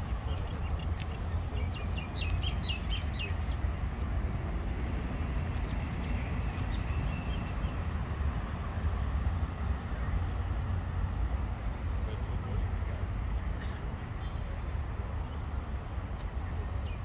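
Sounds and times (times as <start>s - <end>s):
birds chirping: 0.0s - 3.8s.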